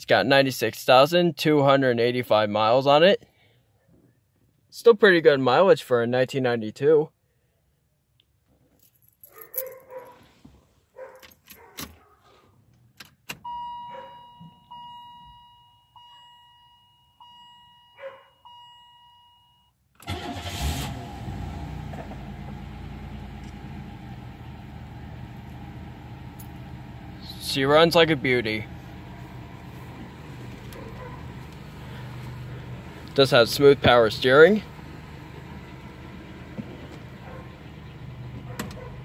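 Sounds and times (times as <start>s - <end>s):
dashboard warning chime: 13.4s - 19.8s
car engine cranking and idling: 20.0s - 39.0s.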